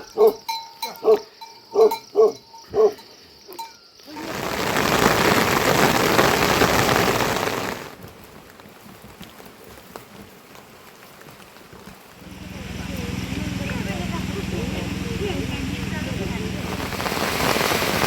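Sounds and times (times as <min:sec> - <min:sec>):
heavy rain rushing: 0:04.1 - 0:08.0, 0:12.1 - 0:18.0.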